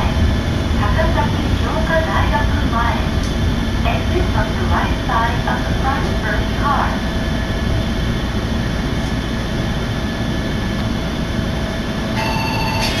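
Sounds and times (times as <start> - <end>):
electric train rumble: 0.0 - 13.0
brief high tone: 12.2 - 13.0.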